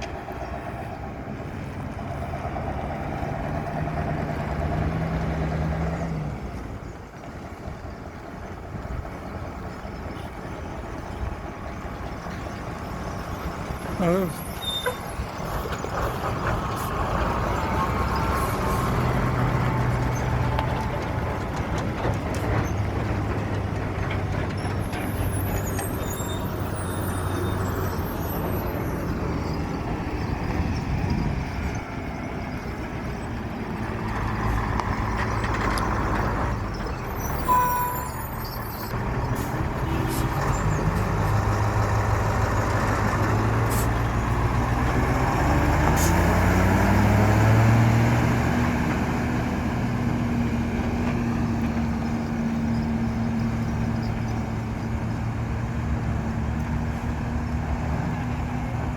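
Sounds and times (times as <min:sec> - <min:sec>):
truck diesel engine running: 0:00.0 - 0:58.9
brief high-pitched tone: 0:37.4 - 0:38.9.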